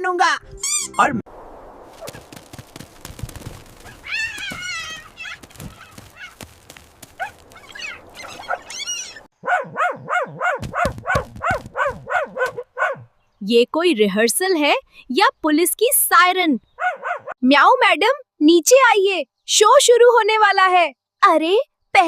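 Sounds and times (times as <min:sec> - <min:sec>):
fast dog barks: 0:03.8 - 0:06.5, 0:07.1 - 0:13.1, 0:16.8 - 0:17.4.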